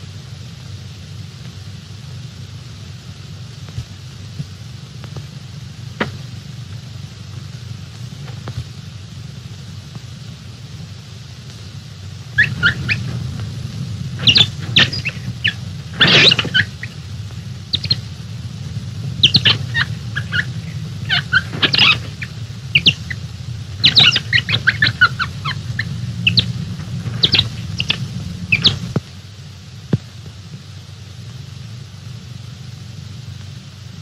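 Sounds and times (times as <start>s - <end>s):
low steady hum: 0.0s - 34.0s
birds chirping and squawking: 12.3s - 29.0s.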